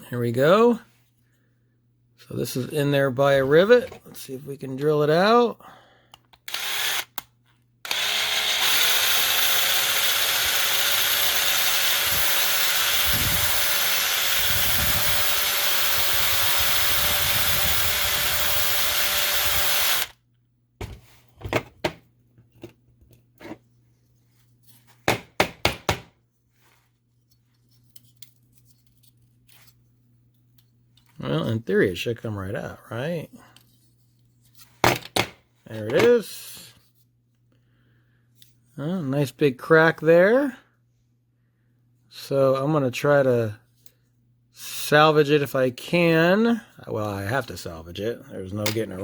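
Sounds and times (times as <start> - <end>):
electric drill running: 6.5 - 7.2, 7.8 - 20.2.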